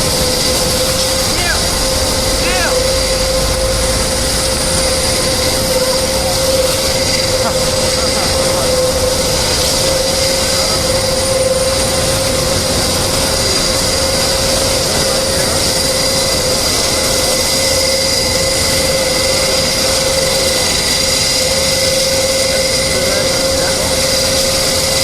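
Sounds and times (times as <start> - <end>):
aircraft turbine running: 0.0 - 25.0.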